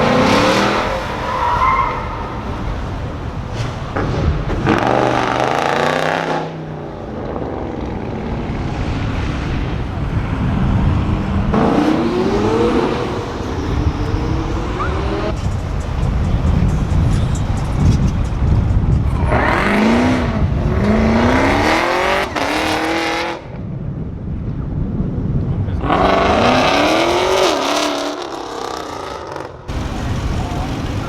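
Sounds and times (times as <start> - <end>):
car engines revving: 0.0 - 23.6, 25.5 - 31.0.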